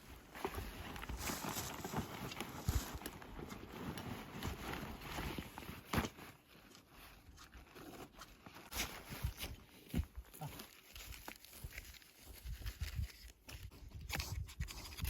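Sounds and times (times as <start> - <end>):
footsteps on forest floor: 9.2 - 13.6.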